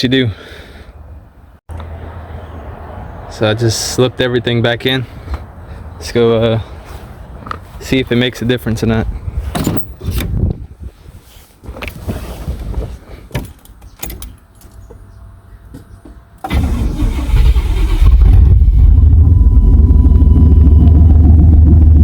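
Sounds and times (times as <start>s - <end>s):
car engine starting and running: 16.4s - 22.0s.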